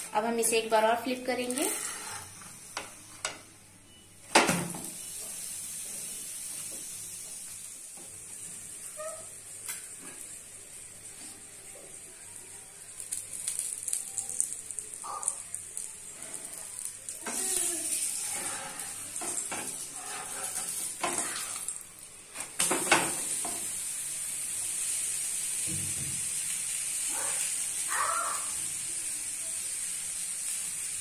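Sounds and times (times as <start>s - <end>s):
flatbread sizzling in oil: 1.2s - 3.2s, 4.4s - 31.0s
metal spatula scraping pan: 1.6s - 2.4s, 17.3s - 21.6s.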